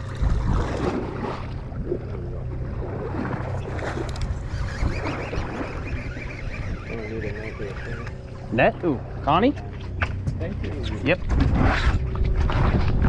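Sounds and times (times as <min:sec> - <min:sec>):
boat engine idling: 0:00.0 - 0:12.4.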